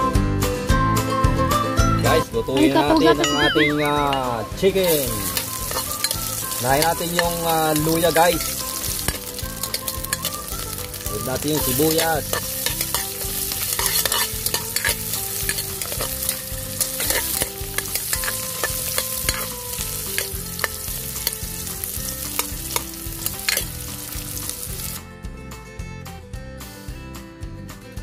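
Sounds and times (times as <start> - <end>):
ginger and onions sizzling: 1.9 - 25.0, 26.6 - 27.0
metal ladle scraping pot: 4.0 - 24.0.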